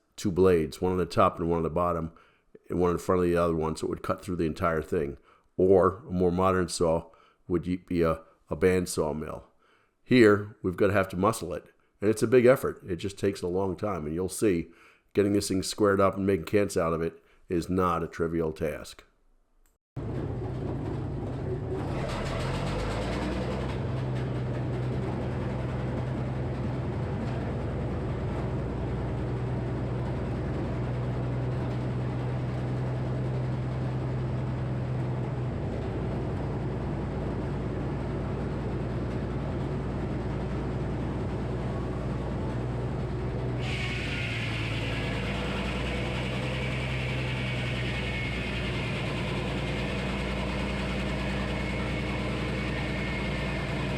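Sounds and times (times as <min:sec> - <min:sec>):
sawmill power unit humming: 0:20.0 - 0:53.9
saw blade cutting log: 0:43.6 - 0:53.9.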